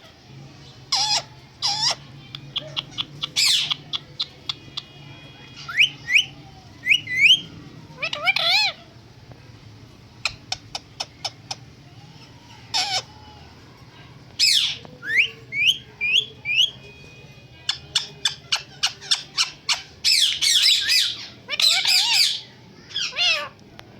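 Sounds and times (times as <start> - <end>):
parrot squawking: 0.9 - 8.9, 12.5 - 13.3, 17.7 - 23.5.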